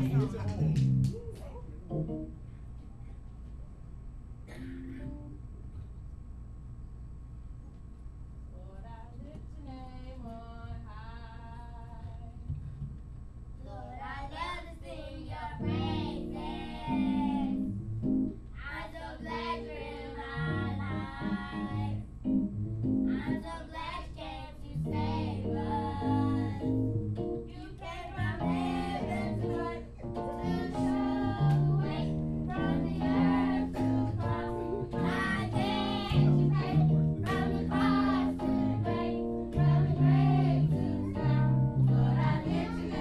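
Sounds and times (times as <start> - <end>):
instrumental accompaniment with bass: 0.0 - 1.2, 15.8 - 18.5, 20.4 - 23.3, 24.8 - 27.5, 28.3 - 43.0
young voices singing: 13.6 - 17.7, 18.6 - 22.1, 23.1 - 26.8, 27.5 - 43.0.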